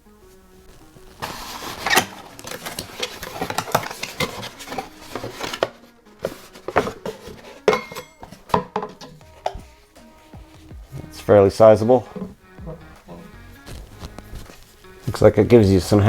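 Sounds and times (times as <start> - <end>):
cardboard rustling and scraping: 0.3 - 16.0
cookware clicks and knocks: 1.9 - 9.6.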